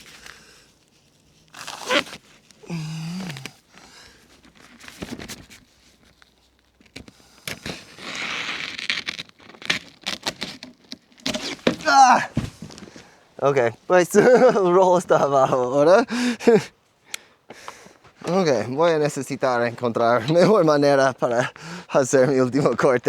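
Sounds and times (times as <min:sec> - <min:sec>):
roofing sheet crinkling: 0:00.0 - 0:15.2.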